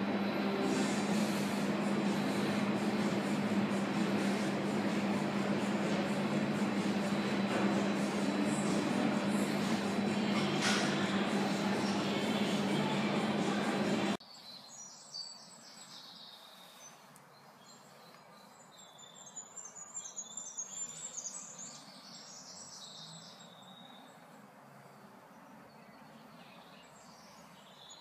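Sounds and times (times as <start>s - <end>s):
loud steady noise: 0.0s - 14.2s
birds chirping and twittering: 0.0s - 28.0s
faint outdoor background noise: 0.0s - 28.0s.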